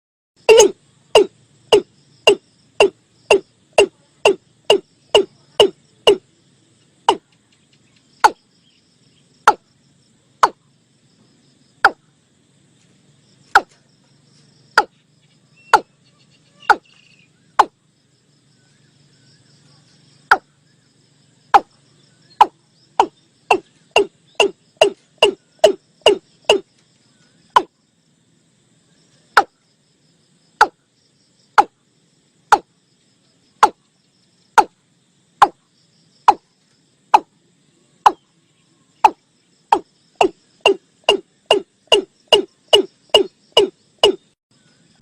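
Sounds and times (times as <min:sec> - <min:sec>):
bird calling hollow notes: 0:00.4 - 0:06.2, 0:07.1 - 0:07.3, 0:08.2 - 0:08.5, 0:09.5 - 0:09.7, 0:10.4 - 0:10.6, 0:13.5 - 0:13.8, 0:14.8 - 0:15.0, 0:15.6 - 0:17.8, 0:20.2 - 0:20.6, 0:22.3 - 0:26.7, 0:27.5 - 0:27.7, 0:30.6 - 0:30.8, 0:33.6 - 0:33.8, 0:39.0 - 0:44.4
insects or frogs chirring: 0:00.4 - 0:45.0.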